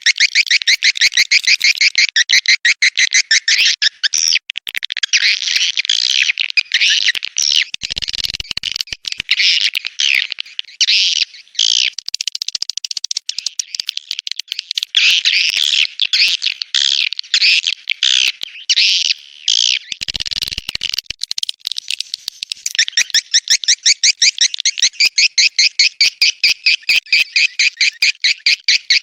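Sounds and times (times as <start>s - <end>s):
swiftlets chirping and twittering: 0.0s - 4.3s, 5.0s - 29.0s.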